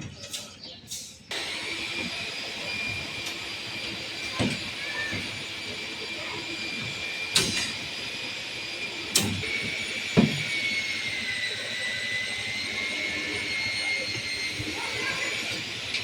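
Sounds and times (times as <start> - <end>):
machine whining: 1.3 - 16.0.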